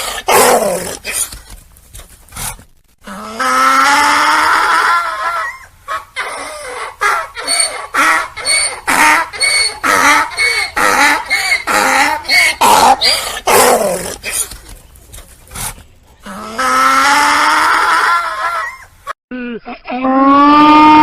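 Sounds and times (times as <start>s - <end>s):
donkey braying: 3.1s - 14.8s.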